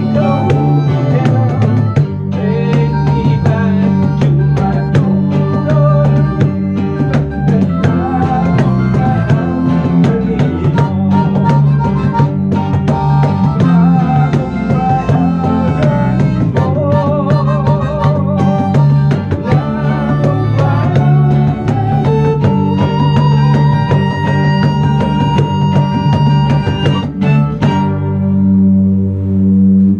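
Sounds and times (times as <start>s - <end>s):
steady drum beat: 0.0s - 28.0s
held wavering melody line: 0.0s - 29.9s
plucked guitar: 0.0s - 29.9s.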